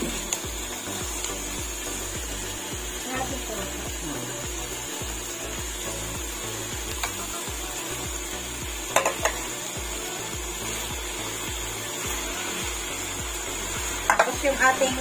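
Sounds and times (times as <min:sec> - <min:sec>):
meat sizzling in a pan: 0:00.0 - 0:15.0
spatula knocking on pan: 0:08.9 - 0:09.4, 0:14.1 - 0:14.4.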